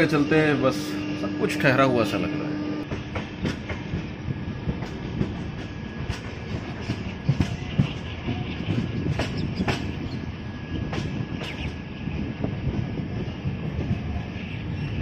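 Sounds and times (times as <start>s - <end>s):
train rumbling along track: 0.0s - 15.0s
wheels clacking over rail joints: 2.9s - 10.2s.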